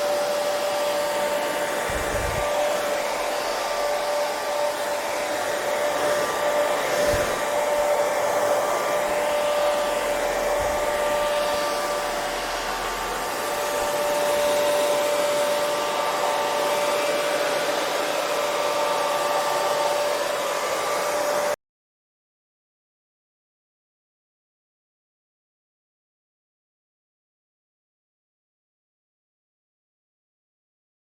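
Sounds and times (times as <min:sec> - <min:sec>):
hair dryer running: 0:00.0 - 0:21.6.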